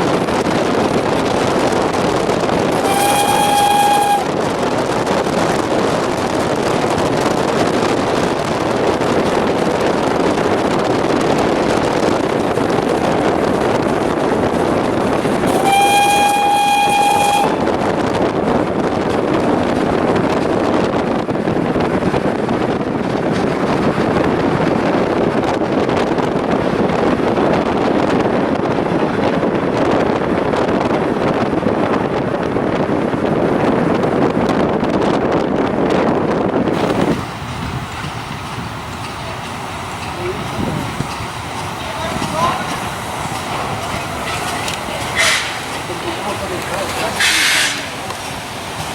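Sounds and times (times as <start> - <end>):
train running on rails: 0.0 - 48.9
steam locomotive whistle: 2.7 - 4.5, 15.5 - 17.7, 44.3 - 45.7, 47.2 - 47.9.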